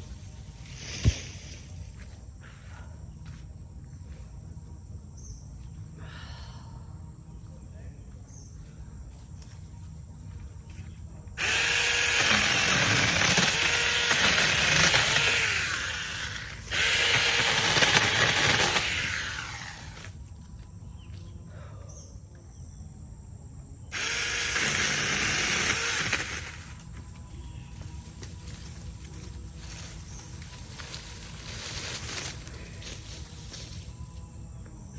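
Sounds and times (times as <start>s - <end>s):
mini chainsaw cutting branches: 11.4s - 20.2s, 23.9s - 27.0s, 27.9s - 33.9s.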